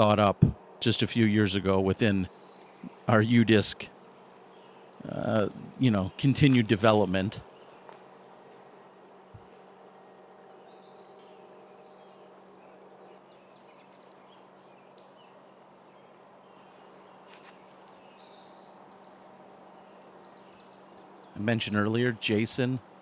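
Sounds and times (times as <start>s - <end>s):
steady low hum: 0.0s - 23.0s
insects buzzing: 0.5s - 23.0s
bird chirps: 10.2s - 23.0s.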